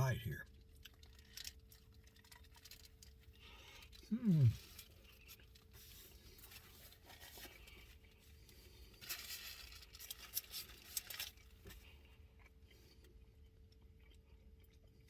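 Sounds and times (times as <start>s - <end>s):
person biting a sandwich: 3.8s - 8.1s
paper wrapper crinkling: 4.6s - 11.8s.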